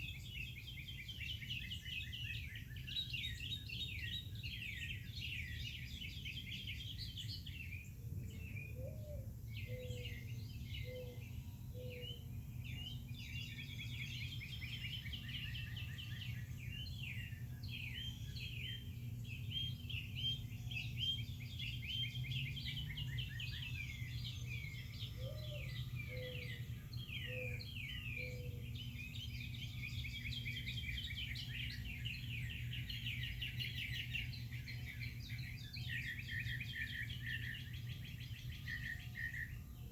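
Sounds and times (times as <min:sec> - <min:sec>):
songbirds singing and chirping: 0:00.0 - 0:39.9
lower five-note bird call: 0:19.5 - 0:34.0.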